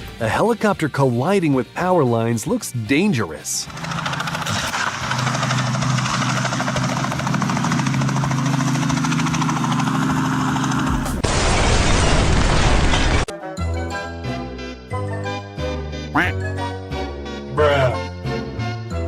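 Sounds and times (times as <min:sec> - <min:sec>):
helicopter rotor beating: 0:03.6 - 0:13.3.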